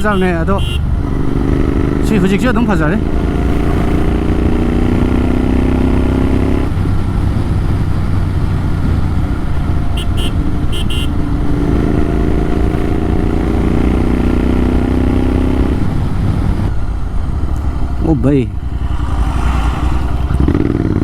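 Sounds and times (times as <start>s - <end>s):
horn short beeps: 0.0s - 0.9s, 10.0s - 11.1s
loud motorcycle accelerating: 0.0s - 21.0s.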